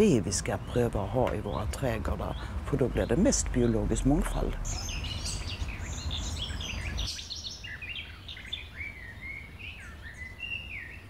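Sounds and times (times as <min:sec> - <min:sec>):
songbirds chirping and singing: 0:00.0 - 0:11.0.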